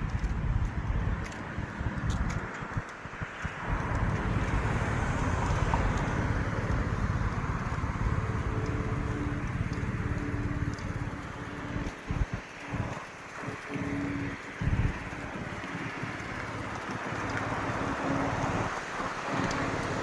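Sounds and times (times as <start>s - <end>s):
road traffic driving past: 0.0s - 20.0s.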